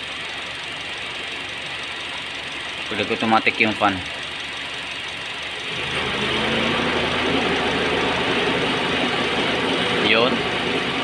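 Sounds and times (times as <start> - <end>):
car engine idling: 0.0 - 11.0
electric radiator fan: 0.0 - 11.0.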